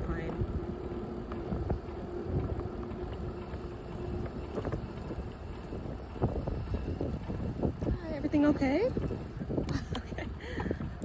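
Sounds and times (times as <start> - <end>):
bicycle rolling on path: 0.0 - 11.0
wind on microphone: 0.0 - 11.0.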